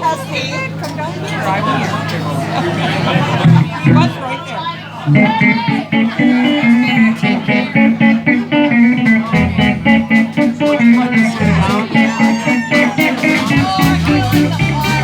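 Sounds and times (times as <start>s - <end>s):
live blues band guitar: 3.0s - 4.2s, 5.1s - 15.0s
heavy bass line: 3.4s - 4.2s, 5.1s - 15.0s.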